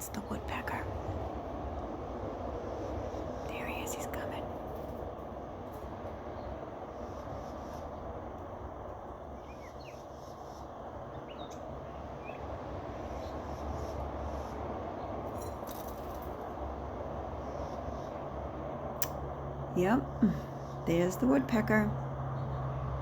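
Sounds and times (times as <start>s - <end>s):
low background rumble: 0.0s - 23.0s
faint bird chirps: 9.3s - 15.1s.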